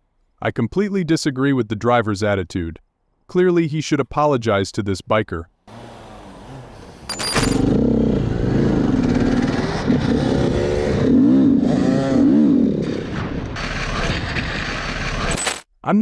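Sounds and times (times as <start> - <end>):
motorcycle engine revving: 5.7 - 15.6.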